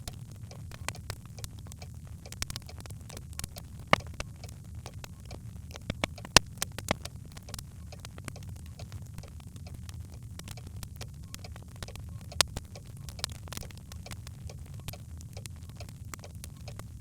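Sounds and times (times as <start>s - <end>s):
fire crackling in fireplace: 0.0s - 17.0s.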